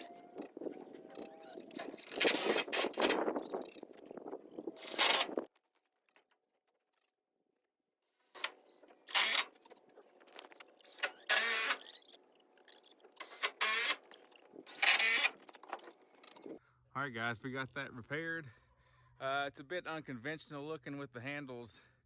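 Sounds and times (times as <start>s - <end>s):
cordless drill driving screws: 1.7s - 3.3s, 4.8s - 5.4s, 8.4s - 9.6s, 10.7s - 12.1s, 13.1s - 15.8s.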